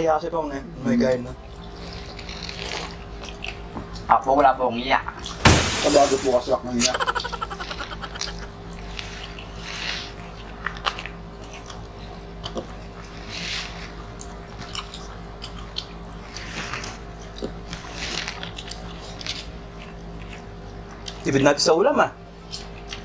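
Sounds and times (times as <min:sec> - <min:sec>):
people chewing and biting food: 0:01.5 - 0:04.1, 0:06.9 - 0:21.4, 0:22.3 - 0:23.0
wet mouth sounds: 0:06.9 - 0:09.5.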